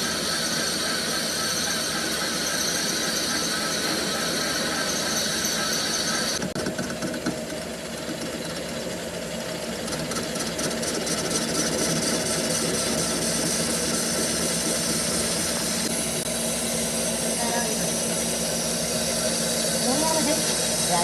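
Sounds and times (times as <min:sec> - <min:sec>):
machinery humming: 0:00.0 - 0:21.0
fast fine rattle: 0:00.2 - 0:15.9.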